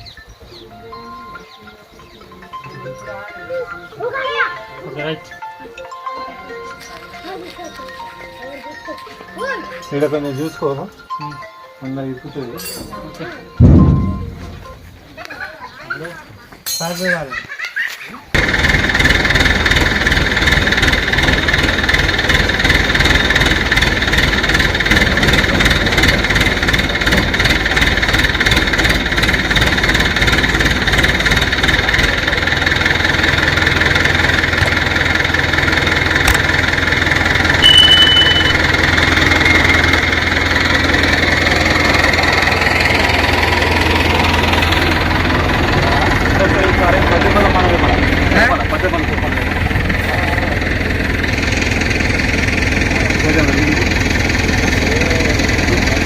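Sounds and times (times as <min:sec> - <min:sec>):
heavy engine running: 0:12.8 - 0:15.3, 0:18.4 - 0:56.0
short high beep: 0:13.6 - 0:14.9, 0:37.6 - 0:38.9.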